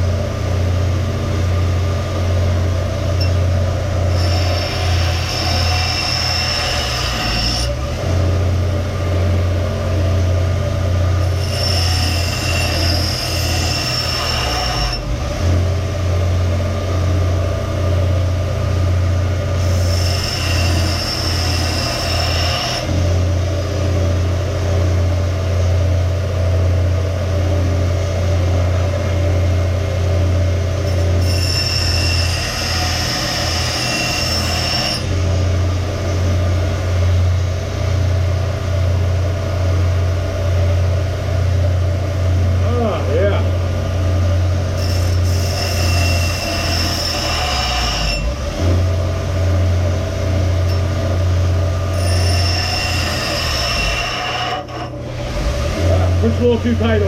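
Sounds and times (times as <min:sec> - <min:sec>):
electric grinder humming: 0:00.0 - 0:25.8, 0:30.2 - 0:38.9, 0:42.5 - 0:57.0
high squeal of steel grinding: 0:03.1 - 0:08.0, 0:11.2 - 0:15.2, 0:19.5 - 0:23.0, 0:30.8 - 0:36.2, 0:44.5 - 0:48.9, 0:50.3 - 0:55.9.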